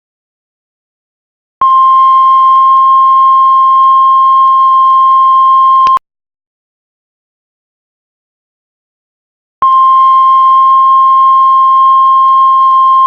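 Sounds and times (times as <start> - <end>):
heart monitor flatline beep: 1.6 - 6.0, 9.6 - 13.0.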